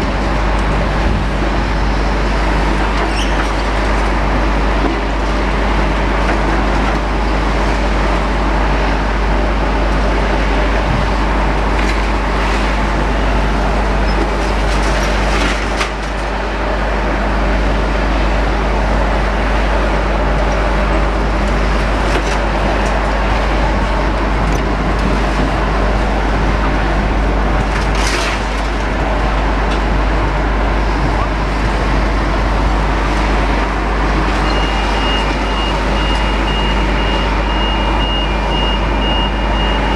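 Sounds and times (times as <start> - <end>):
road traffic din: 0.0 - 39.9.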